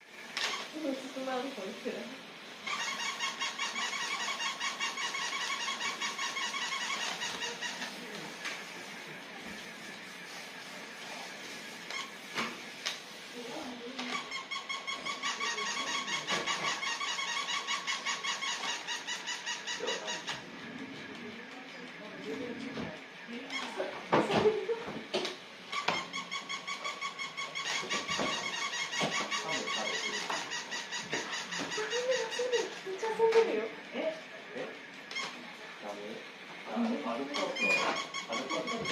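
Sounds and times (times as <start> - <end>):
toy pulsing electronic chirp: 2.6 - 8.1, 13.4 - 20.4, 25.7 - 33.2, 37.3 - 38.9.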